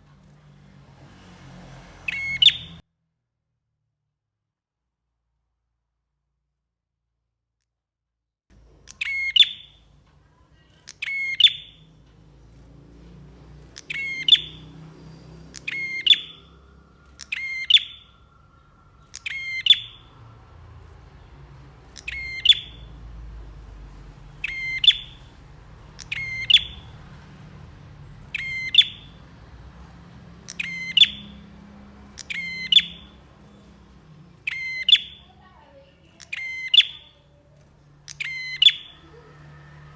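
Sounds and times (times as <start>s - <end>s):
bird chattering call: 2.1s - 2.8s, 8.9s - 9.8s, 10.6s - 11.9s, 13.7s - 20.2s, 21.8s - 27.4s, 28.0s - 39.6s
faint low rumble: 14.6s - 39.9s.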